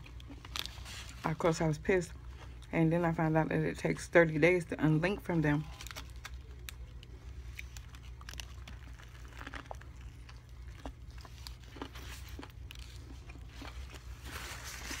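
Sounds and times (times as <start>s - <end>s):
person chewing food: 0.0s - 1.2s, 5.8s - 15.0s
steady low hum: 0.0s - 15.0s.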